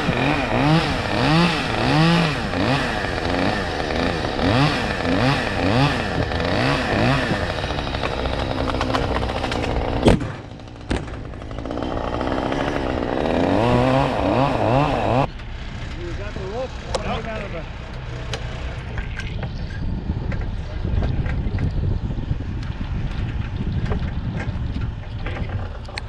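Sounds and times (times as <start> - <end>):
chainsaw engine revving: 0.0 - 15.3
sharp crack: 8.0 - 11.5.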